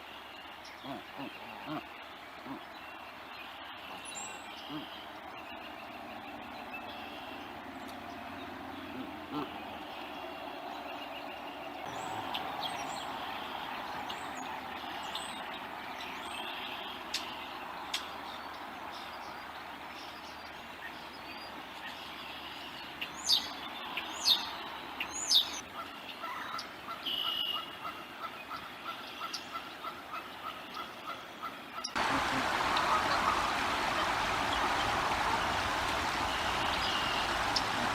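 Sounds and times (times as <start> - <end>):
loud sharp bird calls: 31.9 - 37.9
small birds chirping: 32.2 - 37.9.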